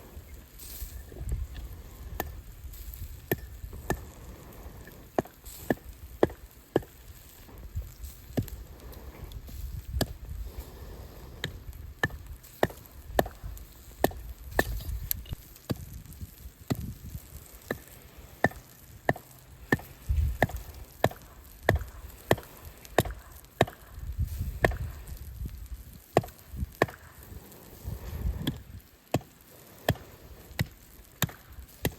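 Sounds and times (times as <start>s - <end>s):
axe chopping wood: 11.4s - 13.4s, 17.7s - 23.9s, 26.2s - 27.2s, 30.6s - 31.9s.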